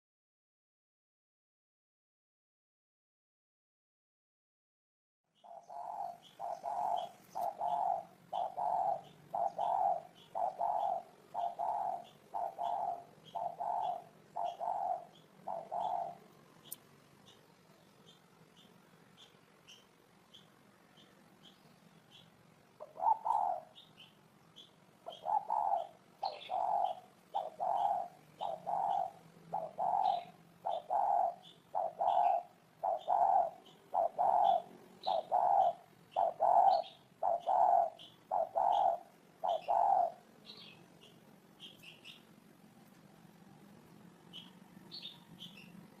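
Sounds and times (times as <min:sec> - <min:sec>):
faint high bird chirps: 0:05.3 - 0:46.0
dove cooing: 0:05.4 - 0:16.4, 0:22.8 - 0:40.8.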